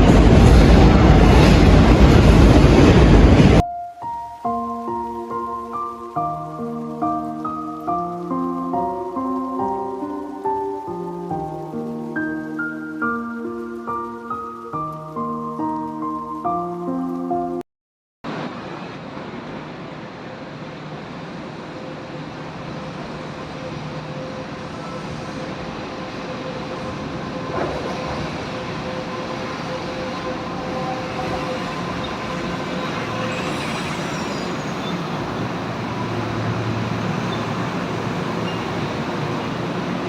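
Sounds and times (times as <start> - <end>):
train wheels rumbling: 0.0 - 3.6, 18.4 - 40.0.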